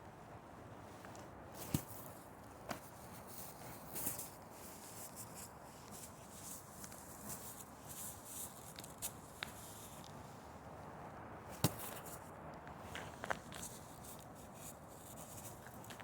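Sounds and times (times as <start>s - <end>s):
faint background hiss: 0.0s - 16.0s
footsteps in snow: 1.6s - 10.2s.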